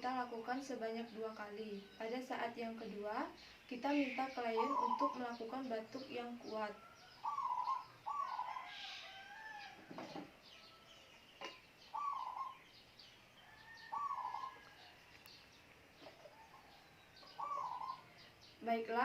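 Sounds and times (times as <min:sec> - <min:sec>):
faint bird chirping: 0:00.0 - 0:19.0
bird call: 0:04.0 - 0:05.5, 0:07.1 - 0:10.3, 0:10.9 - 0:12.7, 0:13.4 - 0:15.3, 0:17.2 - 0:18.2.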